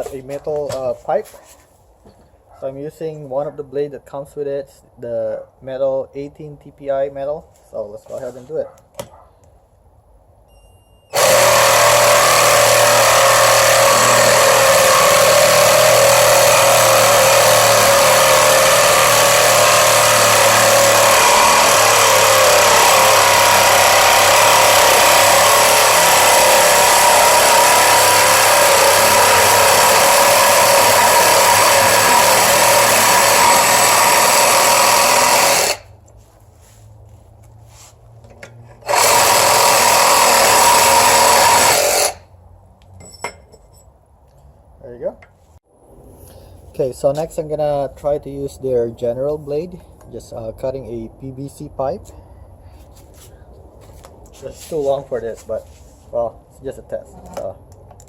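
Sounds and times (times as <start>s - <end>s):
reciprocating saw cutting metal pipe: 11.1s - 35.9s, 38.8s - 42.2s.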